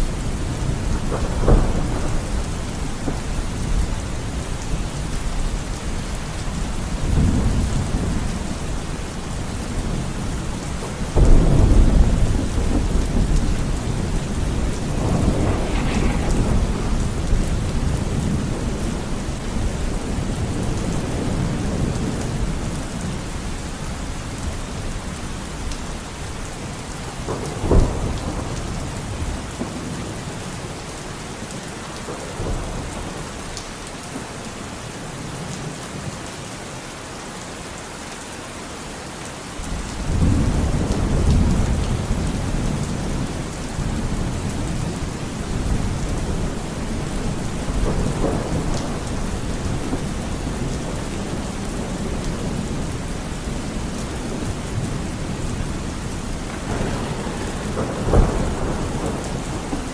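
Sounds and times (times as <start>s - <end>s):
rolling thunder: 0.0s - 23.5s, 39.7s - 59.9s
steady rain: 0.0s - 59.9s
sharp thunder crack: 11.2s - 20.6s, 54.4s - 59.9s.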